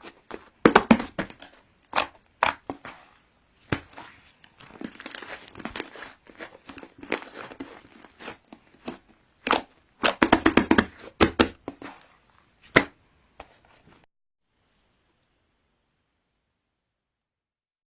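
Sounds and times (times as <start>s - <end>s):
crinkling and crackling: 0.0s - 9.8s.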